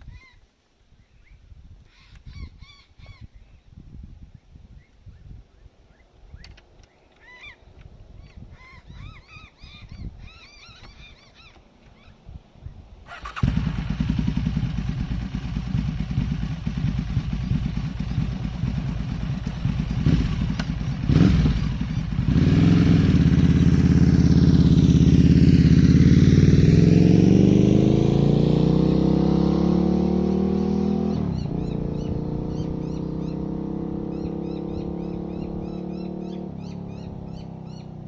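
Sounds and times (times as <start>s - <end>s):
motorcycle engine starting and revving: 13.1s - 38.0s.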